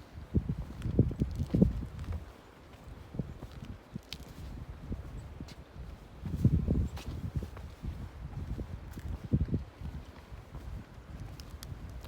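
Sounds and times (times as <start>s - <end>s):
wind rumbling on microphone: 0.0s - 12.0s
footsteps scrambling over rock: 0.6s - 4.6s.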